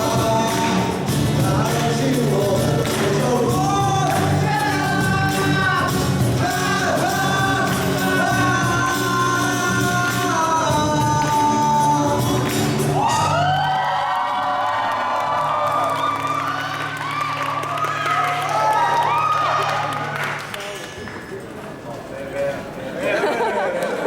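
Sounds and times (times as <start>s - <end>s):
live rock band playing: 0.0s - 13.4s
person singing long notes: 0.0s - 13.6s.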